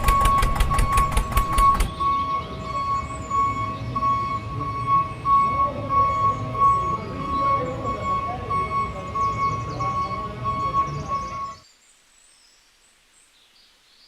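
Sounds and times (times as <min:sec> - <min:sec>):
rattling low rumble: 0:00.0 - 0:04.3.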